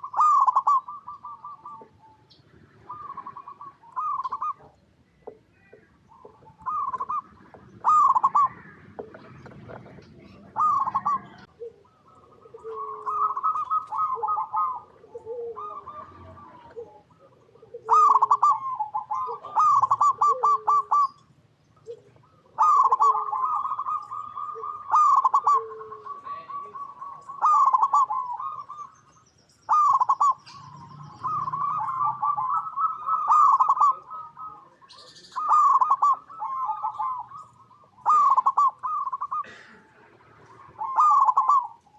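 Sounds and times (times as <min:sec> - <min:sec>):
doves cooing: 0:00.0 - 0:41.9.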